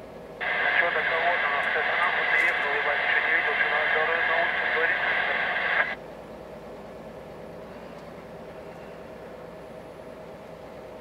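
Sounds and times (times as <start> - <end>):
faint constant hum: 0.0 - 11.0
truck engine drone: 0.4 - 6.0.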